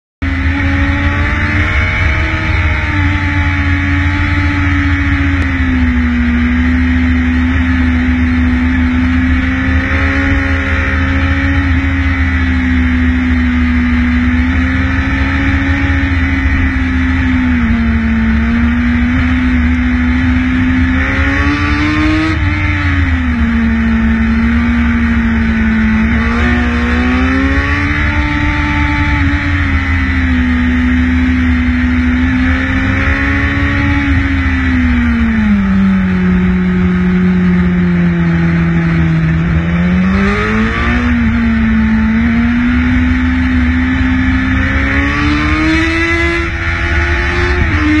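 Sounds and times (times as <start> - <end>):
motorcycle engine running: 0.2 - 48.0.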